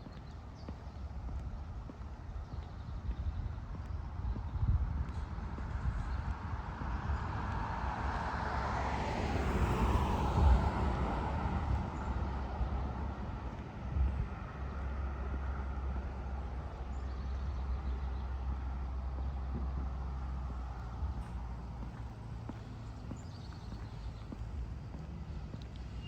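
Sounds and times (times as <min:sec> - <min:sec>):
steady low rumble: 0:00.0 - 0:07.7, 0:10.3 - 0:26.0
car passing by: 0:06.4 - 0:16.6.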